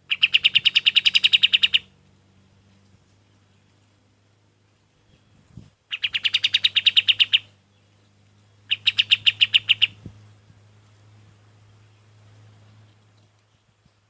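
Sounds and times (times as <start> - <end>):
bird singing fast trills: 0.0 - 2.0, 4.6 - 10.3
low electrical hum: 0.0 - 14.0.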